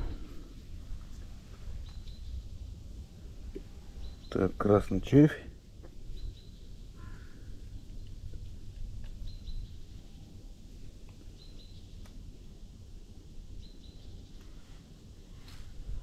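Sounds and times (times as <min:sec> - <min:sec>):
steady low rumble: 0:00.0 - 0:16.0
bird chirping: 0:01.7 - 0:02.5, 0:03.8 - 0:04.6, 0:06.1 - 0:07.4, 0:09.2 - 0:10.3, 0:11.3 - 0:12.0, 0:13.6 - 0:14.4.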